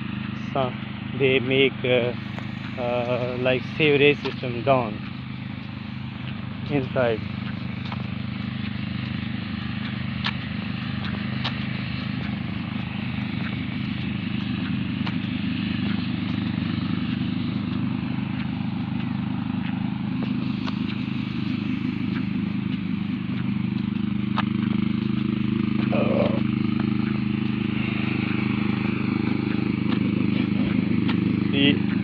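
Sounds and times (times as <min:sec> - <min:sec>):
tractor engine running: 0:00.0 - 0:32.0.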